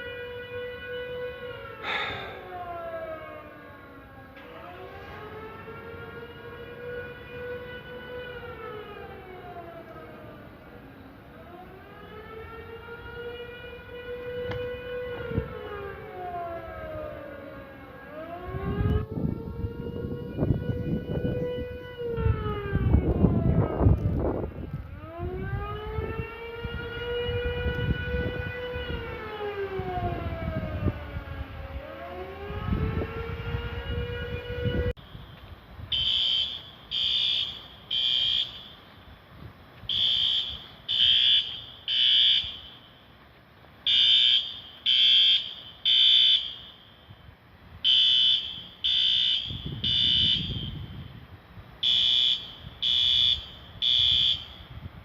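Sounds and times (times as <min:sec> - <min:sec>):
siren wailing: 0:00.0 - 0:39.2, 0:39.9 - 0:43.1, 0:43.8 - 0:54.9
smoke alarm high beeps: 0:47.9 - 0:50.8.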